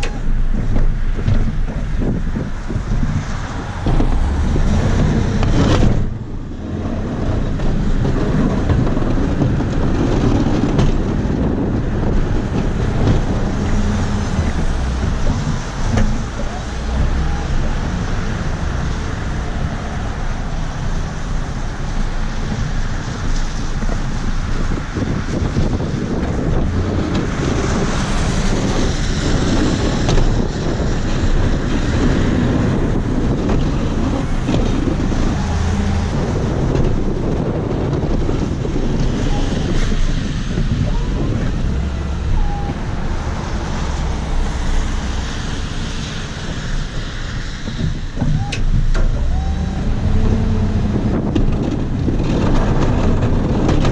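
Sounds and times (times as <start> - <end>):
steady rushing noise: 0.0 - 53.9
vehicle engine running: 0.0 - 53.9
wind buffeting microphone: 0.0 - 53.9.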